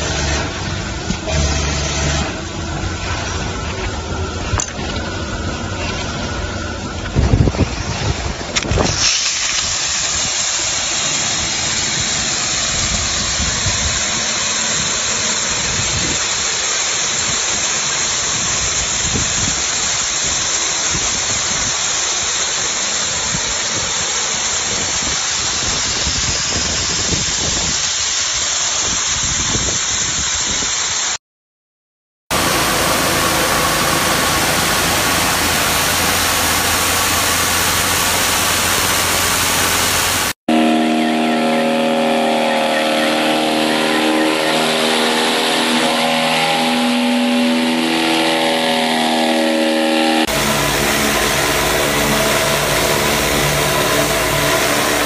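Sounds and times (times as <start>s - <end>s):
engine hum: 0.0s - 8.9s, 32.3s - 55.0s
pressure washer spraying: 8.7s - 31.0s, 32.3s - 40.4s, 42.9s - 55.0s.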